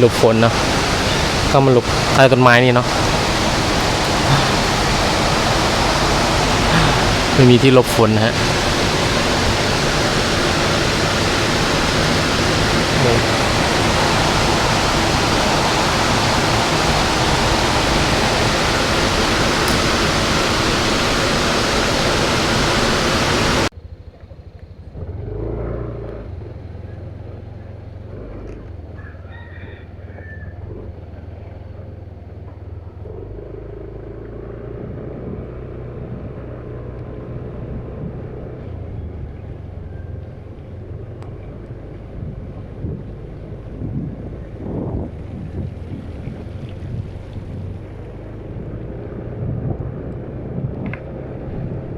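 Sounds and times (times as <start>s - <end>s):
stream rushing: 0.0s - 23.7s
low engine rumble: 0.0s - 51.9s.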